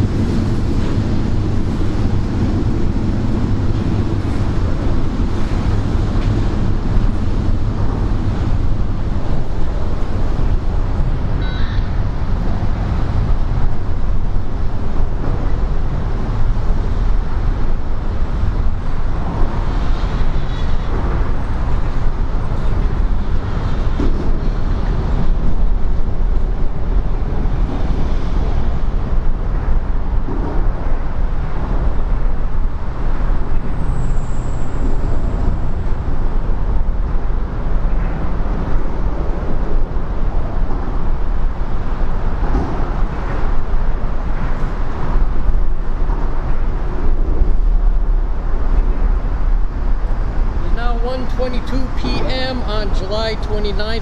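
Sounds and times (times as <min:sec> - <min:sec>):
vehicle rumble: 0:00.0 - 0:54.0.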